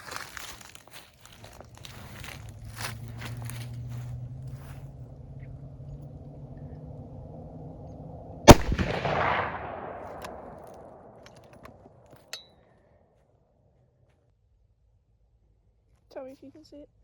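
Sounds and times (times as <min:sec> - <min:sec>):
rifle shot: 0:08.5 - 0:11.8.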